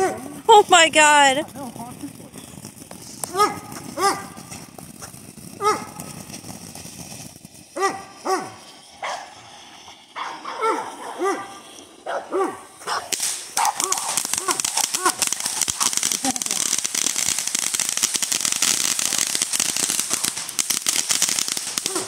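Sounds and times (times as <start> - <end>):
fireworks crackling: 0.0 - 22.0
dog barking: 3.3 - 4.4, 5.6 - 5.9, 7.8 - 9.3, 10.2 - 14.1.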